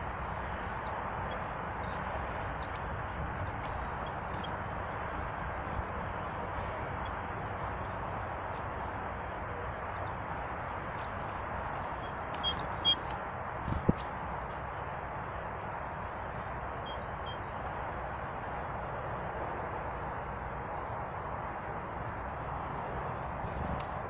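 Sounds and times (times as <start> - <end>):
small birds chirping: 0.1 - 14.2, 16.4 - 17.7.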